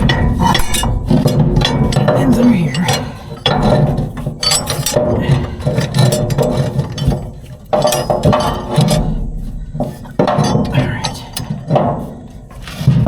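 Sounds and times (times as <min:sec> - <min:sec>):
short metal clicks: 0:00.0 - 0:09.1
metal parts clinking and knocking: 0:00.0 - 0:13.0.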